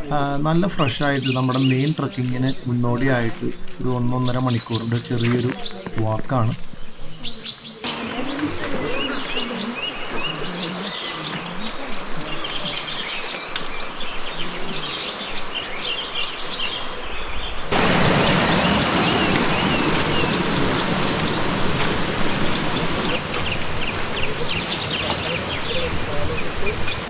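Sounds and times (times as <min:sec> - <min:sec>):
birds chirping: 0:00.0 - 0:27.0
steady loud hiss: 0:14.8 - 0:27.0.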